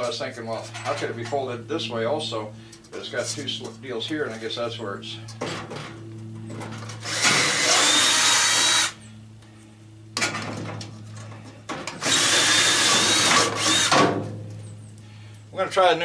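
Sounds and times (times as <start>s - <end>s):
power drill whine: 7.0s - 9.0s, 12.0s - 14.0s.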